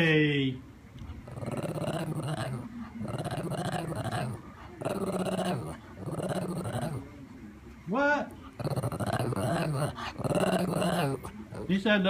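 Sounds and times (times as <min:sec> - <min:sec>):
dog moaning growly: 0:01.1 - 0:07.1, 0:08.5 - 0:11.8.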